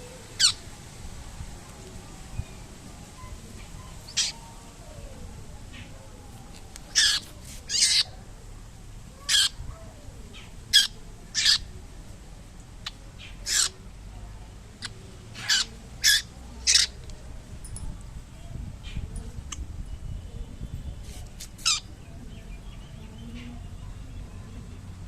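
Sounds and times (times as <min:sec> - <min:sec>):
young bird screeching calls: 0:04.1 - 0:04.4, 0:06.9 - 0:08.1, 0:09.3 - 0:09.6, 0:10.8 - 0:11.6, 0:13.4 - 0:13.8, 0:15.4 - 0:17.0.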